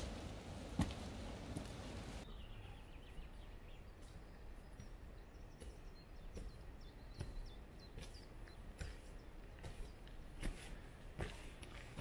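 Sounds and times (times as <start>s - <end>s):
soft footfalls on grass: 0.0s - 2.2s, 3.8s - 12.0s
small bird chirping: 2.2s - 10.4s.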